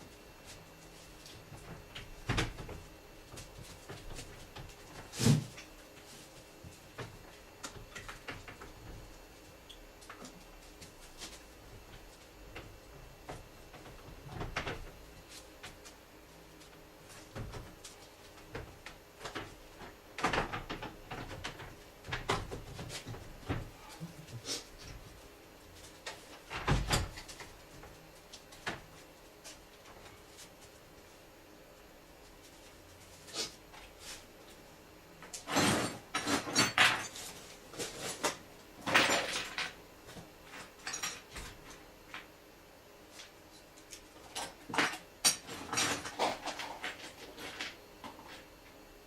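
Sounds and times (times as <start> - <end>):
tools and parts being handled: 35.3 - 42.3.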